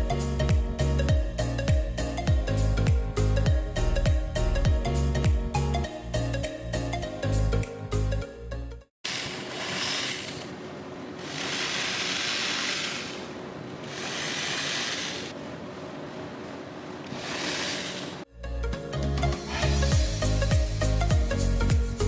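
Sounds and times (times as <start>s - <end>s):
cordless drill boring into wood: 11.2s - 13.2s, 13.9s - 15.3s, 17.1s - 18.2s.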